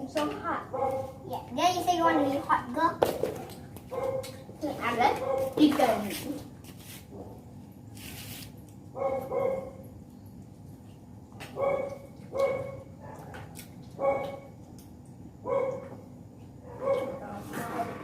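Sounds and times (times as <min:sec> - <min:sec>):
dog barking: 0:00.7 - 0:01.2, 0:03.9 - 0:04.4, 0:05.2 - 0:05.6, 0:08.9 - 0:09.8, 0:11.5 - 0:14.5, 0:15.4 - 0:16.0, 0:16.6 - 0:17.2.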